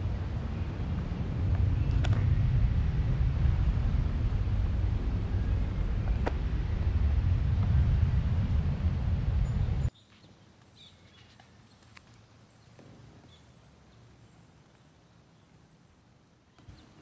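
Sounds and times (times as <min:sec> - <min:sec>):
wind buffeting microphone: 0:00.0 - 0:09.9
faint bird chirps: 0:09.4 - 0:17.0.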